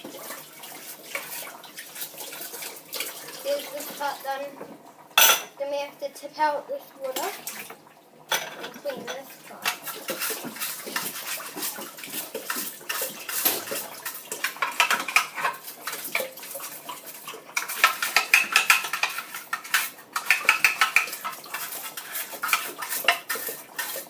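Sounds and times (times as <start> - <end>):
scrubbing water drinker by hand: 8.7 - 24.0.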